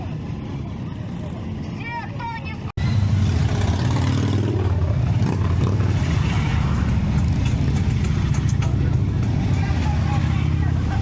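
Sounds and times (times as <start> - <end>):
motorcycle engine rumbling: 2.8 - 11.0.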